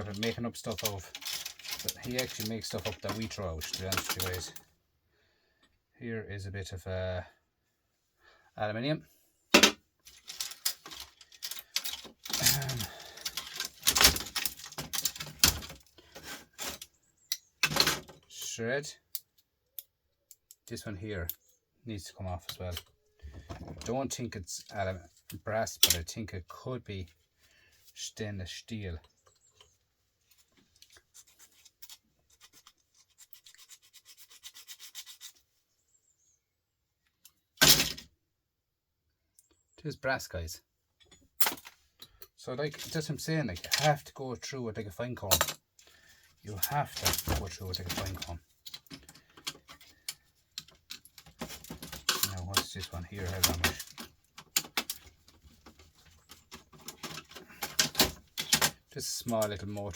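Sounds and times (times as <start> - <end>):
small parts clicking and clinking: 0.0 - 4.7, 9.6 - 18.4, 41.0 - 44.1, 45.3 - 59.9.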